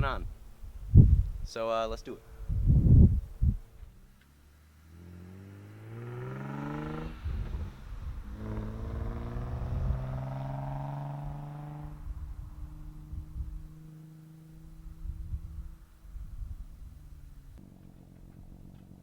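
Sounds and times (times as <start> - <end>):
car engine accelerating hard: 2.2 - 16.1.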